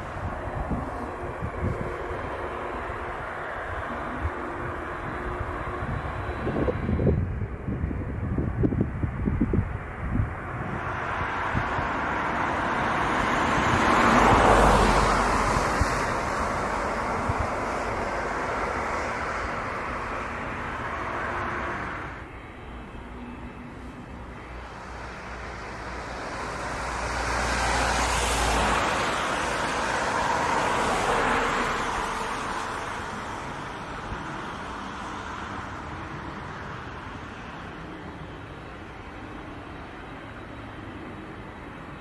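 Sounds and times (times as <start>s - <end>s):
jet airliner engines passing: 0.0s - 42.0s.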